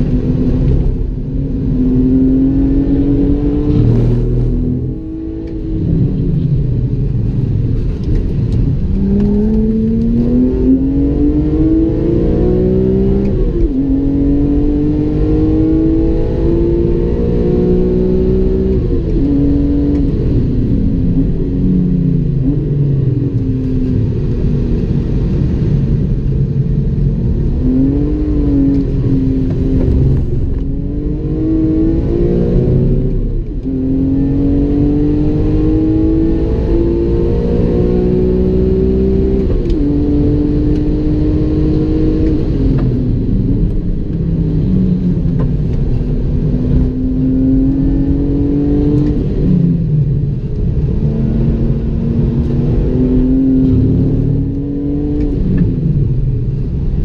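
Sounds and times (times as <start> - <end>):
car engine accelerating through gears: 0.0 - 57.0.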